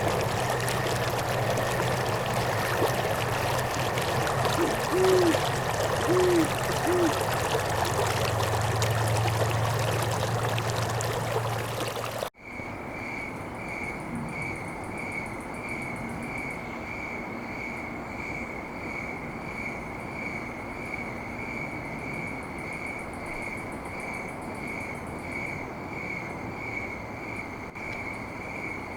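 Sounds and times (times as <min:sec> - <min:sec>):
rushing river water: 0:00.0 - 0:12.3
steady chirping: 0:04.3 - 0:09.1
short hoots: 0:04.4 - 0:07.8.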